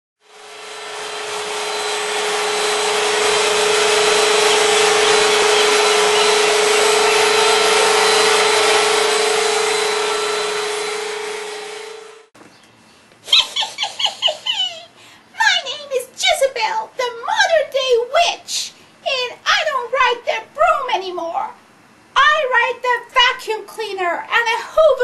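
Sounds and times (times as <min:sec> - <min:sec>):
vacuum cleaner running: 0:00.2 - 0:12.3.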